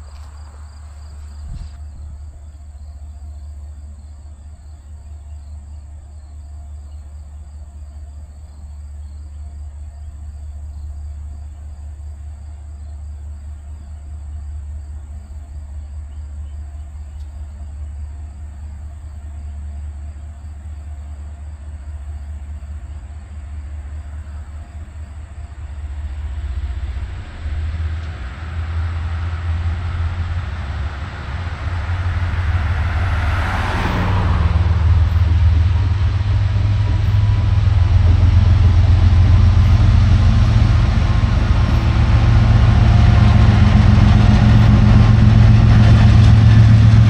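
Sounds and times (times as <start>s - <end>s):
insects chirring: 0.0s - 27.0s
diesel locomotives rumbling: 0.0s - 47.0s.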